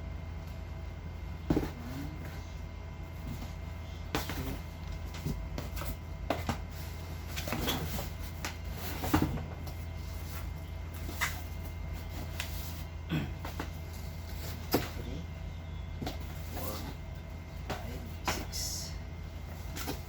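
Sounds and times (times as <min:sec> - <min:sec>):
steady low hum: 0:00.0 - 0:20.0
boxes knocking and rustling: 0:01.3 - 0:02.5, 0:03.1 - 0:15.2, 0:16.0 - 0:18.6, 0:19.4 - 0:20.0.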